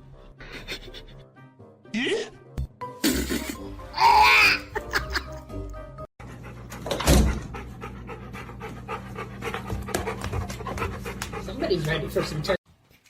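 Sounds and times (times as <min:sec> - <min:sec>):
background music: 0:00.0 - 0:06.1
dog panting: 0:06.2 - 0:12.6.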